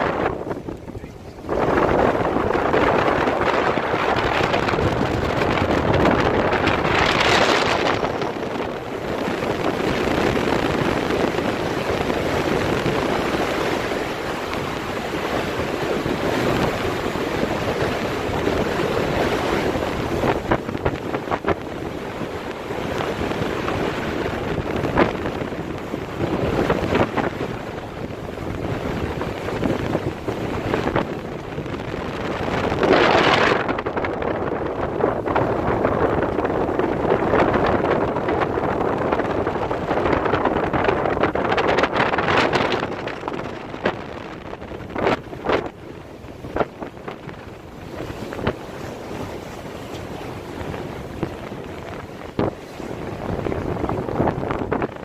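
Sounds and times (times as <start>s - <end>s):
boat noise: 0.0s - 55.0s
water rushing: 0.0s - 55.0s
wind buffeting microphone: 0.0s - 55.0s.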